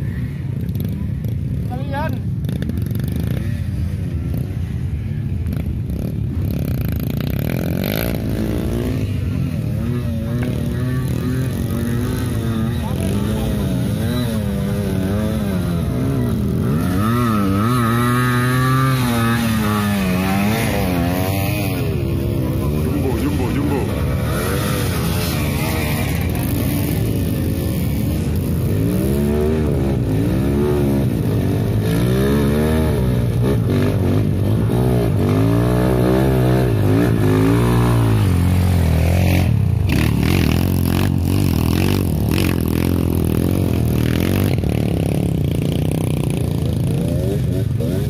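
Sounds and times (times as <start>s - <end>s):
motorcycle engine revving: 0.0s - 48.0s.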